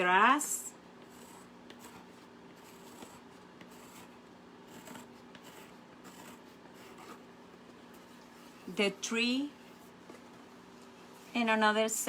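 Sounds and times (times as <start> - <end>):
low steady hum: 0.0 - 12.0
drawing tool scratching: 1.0 - 7.3.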